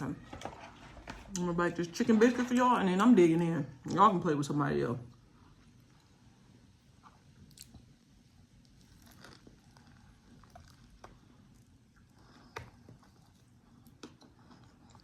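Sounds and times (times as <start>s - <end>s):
quiet chewing: 5.1s - 15.0s.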